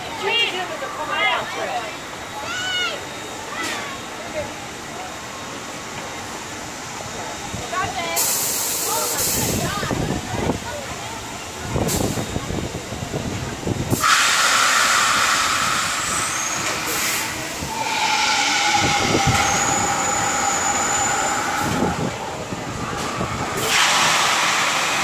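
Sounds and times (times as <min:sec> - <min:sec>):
loud rushing hiss: 0:04.0 - 0:10.5, 0:11.3 - 0:25.0
steady whistling tones: 0:15.1 - 0:23.8.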